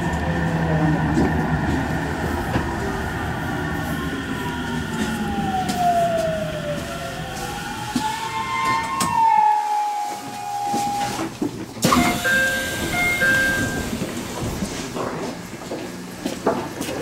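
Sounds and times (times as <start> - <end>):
train motor whine: 4.5 - 14.1.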